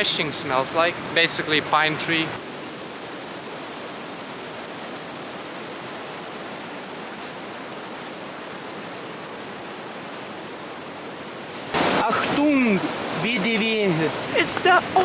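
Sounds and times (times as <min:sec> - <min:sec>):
waterfall rushing: 0:02.4 - 0:14.5.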